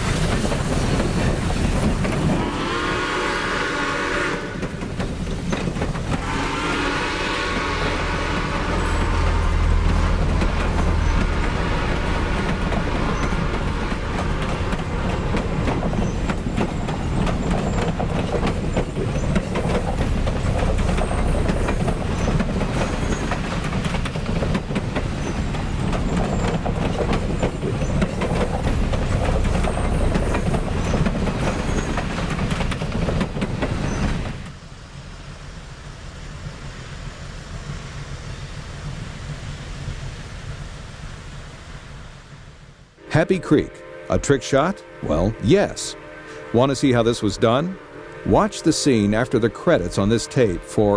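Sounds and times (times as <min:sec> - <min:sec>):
wheels clattering on rails: 0:00.0 - 0:03.1, 0:04.3 - 0:41.5
steam locomotive rumbling: 0:00.0 - 0:50.9.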